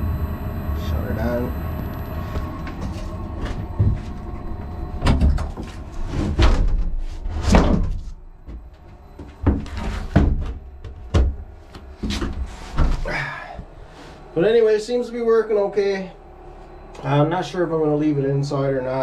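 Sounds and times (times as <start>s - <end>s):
knocks and thumps in a room: 2.4s - 13.8s.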